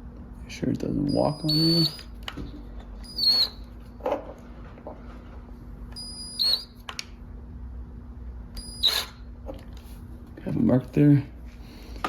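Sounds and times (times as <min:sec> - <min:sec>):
drill whining: 0:08.6 - 0:09.3.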